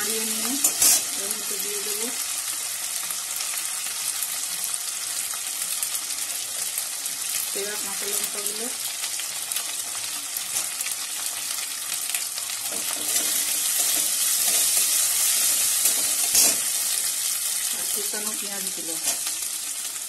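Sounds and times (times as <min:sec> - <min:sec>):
food sizzling in hot oil: 0:00.0 - 0:20.0
metal spatula stirring: 0:12.7 - 0:16.7.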